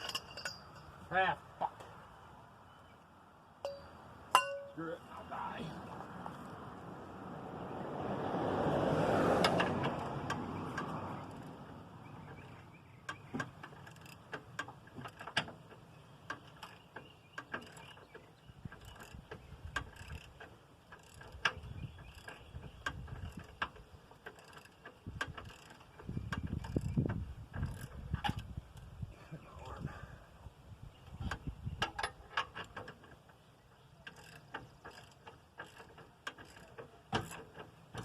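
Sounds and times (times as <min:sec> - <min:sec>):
metallic ratchet clicks: 0:18.7 - 0:27.0.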